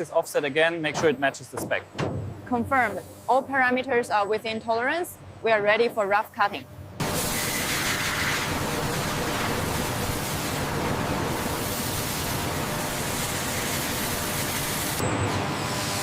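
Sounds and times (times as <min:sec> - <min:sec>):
machine cutting metal hiss: 0:07.0 - 0:16.0.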